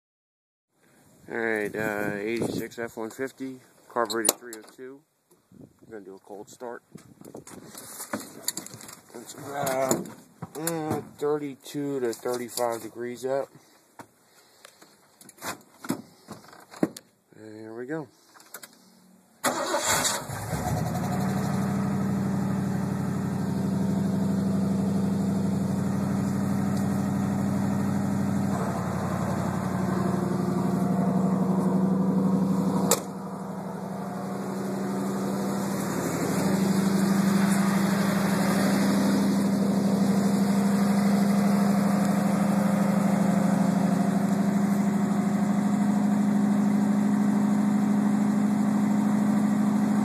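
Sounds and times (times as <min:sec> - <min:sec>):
engine idling: 0:19.5 - 0:50.0.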